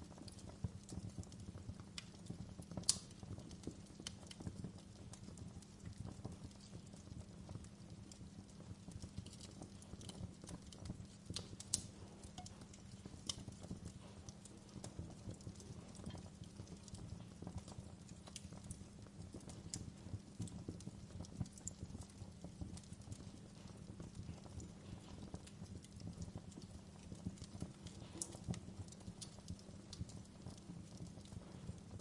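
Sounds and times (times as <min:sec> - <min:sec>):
wood fire crackling: 0:00.0 - 0:32.0
sharp pops of fire: 0:01.5 - 0:04.6, 0:21.6 - 0:30.6.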